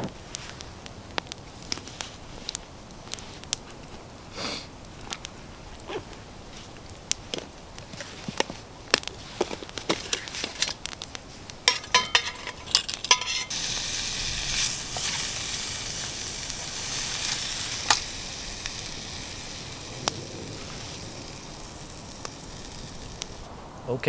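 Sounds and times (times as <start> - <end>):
food sizzling in a pan: 11.7 - 23.5.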